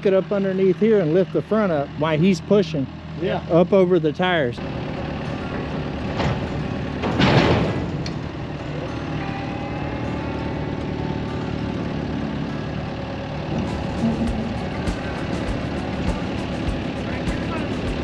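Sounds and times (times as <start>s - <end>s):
tractor engine running: 13.5s - 18.0s.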